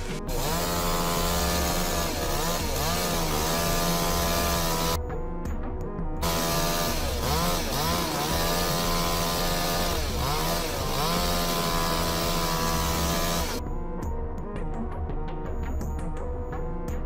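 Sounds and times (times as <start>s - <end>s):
chainsaw engine high revs: 0.0s - 5.0s, 6.2s - 13.6s.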